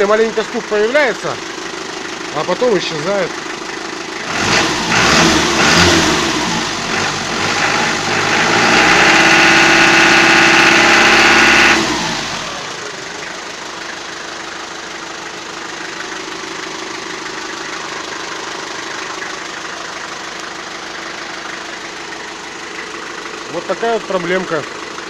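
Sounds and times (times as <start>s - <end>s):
engine knocking: 0.0s - 6.2s, 12.6s - 25.0s
diesel engine revving and idling: 0.0s - 25.0s.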